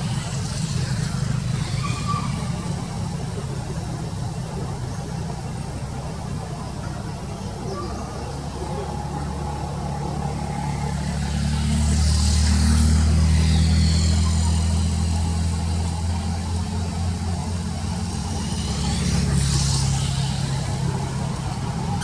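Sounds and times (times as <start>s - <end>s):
vehicle engine hum: 0.0s - 22.0s
vehicle rushing past: 6.6s - 22.0s.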